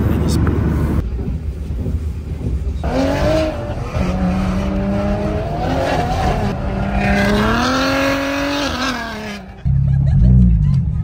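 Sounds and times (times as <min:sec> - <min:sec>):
car engine revving: 0:02.8 - 0:10.2.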